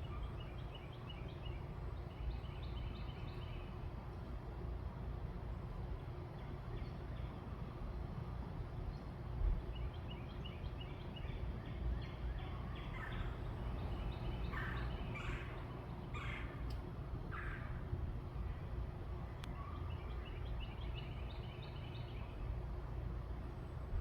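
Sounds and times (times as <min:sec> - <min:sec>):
steady low rumble: 0:12.0 - 0:24.0.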